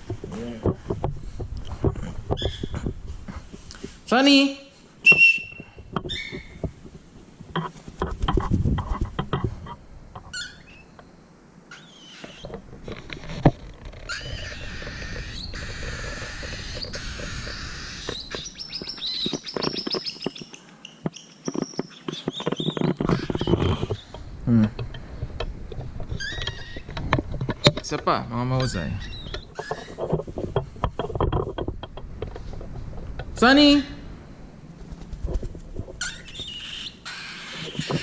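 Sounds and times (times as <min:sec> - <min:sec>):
rustling: 0:00.0 - 0:10.4, 0:12.1 - 0:38.0
bird chirping: 0:02.3 - 0:02.8, 0:05.0 - 0:06.6, 0:10.2 - 0:12.5, 0:13.9 - 0:24.3, 0:26.1 - 0:27.0, 0:28.2 - 0:30.1, 0:35.9 - 0:38.0
knocks and taps: 0:29.3 - 0:32.4.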